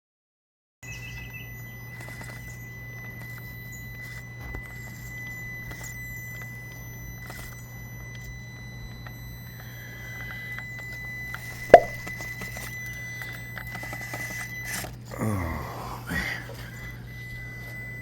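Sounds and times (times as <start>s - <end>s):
steady high-pitched whine: 0.8s - 18.0s
sharp knock: 11.7s - 12.0s
man groaning: 15.1s - 16.6s.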